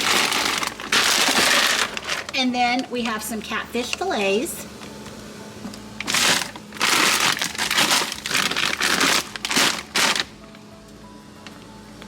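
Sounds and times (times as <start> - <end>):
plastic packaging crinkling: 0.0 - 3.4, 6.0 - 10.4.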